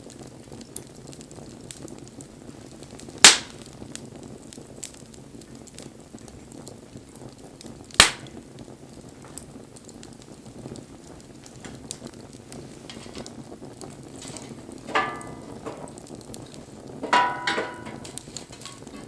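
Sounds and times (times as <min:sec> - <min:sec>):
burning wood snapping: 0:00.0 - 0:19.0
fire crackling: 0:00.0 - 0:19.0
wood fire burning: 0:00.0 - 0:19.0.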